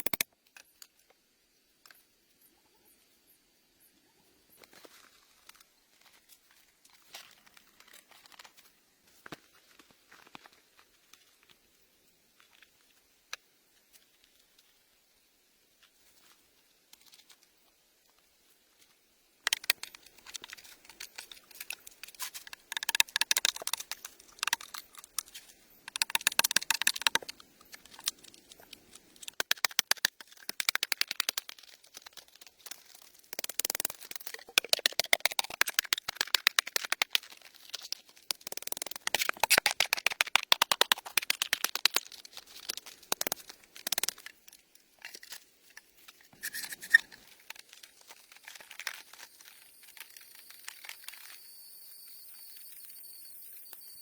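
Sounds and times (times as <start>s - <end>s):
dry twigs crackling and snapping: 19.5s - 46.2s, 47.3s - 51.3s.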